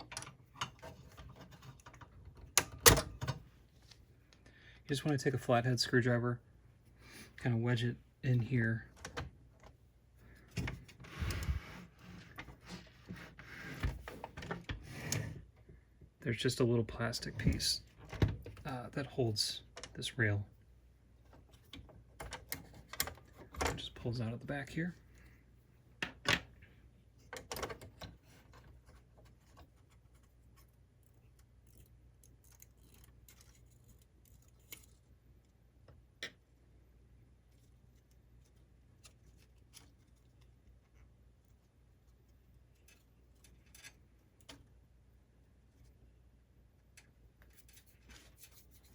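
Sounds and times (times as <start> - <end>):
plastic parts clicking and rattling: 27.2 - 30.3, 31.0 - 35.1.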